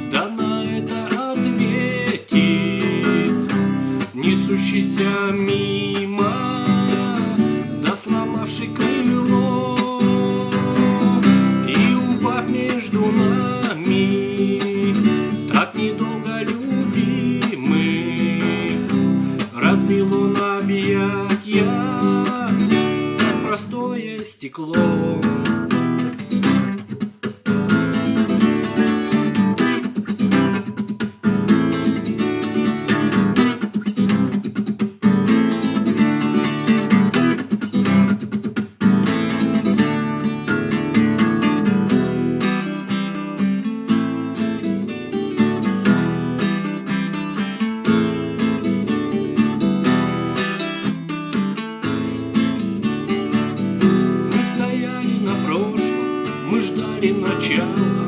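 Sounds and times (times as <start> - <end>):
acoustic guitar strumming chords: 0.0 - 58.0.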